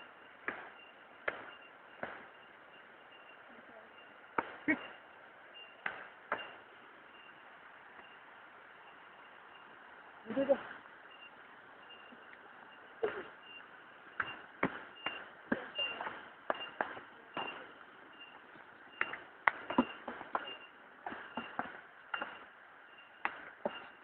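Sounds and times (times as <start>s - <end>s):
faint high chirp: 0.0s - 10.5s, 11.1s - 24.0s
sharp taps and knocks: 0.4s - 2.4s, 4.4s - 4.9s, 5.8s - 6.6s, 14.1s - 17.8s, 18.9s - 22.5s, 23.2s - 24.0s.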